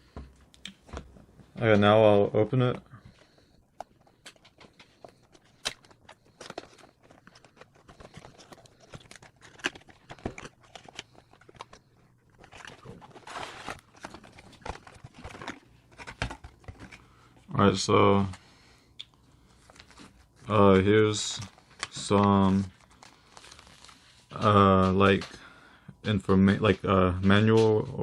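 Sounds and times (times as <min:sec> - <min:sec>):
packaging tearing rasp: 0:04.6 - 0:17.0.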